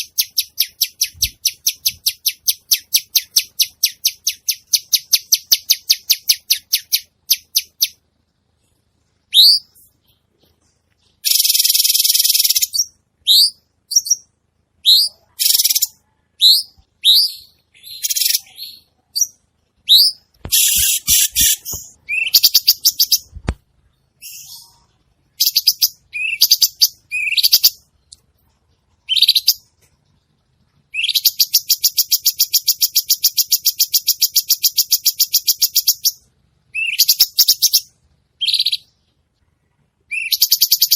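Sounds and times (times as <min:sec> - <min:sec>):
songbird singing trills: 0:09.3 - 0:23.4, 0:24.0 - 0:28.2, 0:30.9 - 0:39.1, 0:40.1 - 0:40.9.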